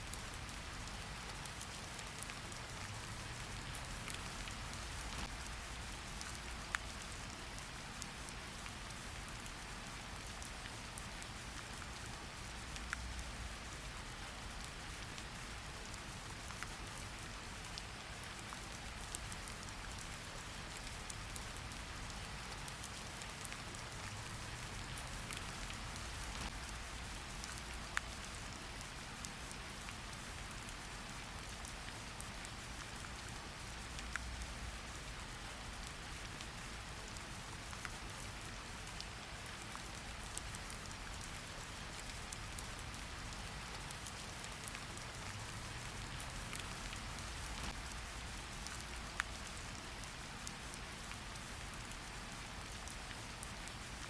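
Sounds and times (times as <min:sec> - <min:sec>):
steady rain falling: 0:00.0 - 0:54.0
drip ticks: 0:44.0 - 0:48.0.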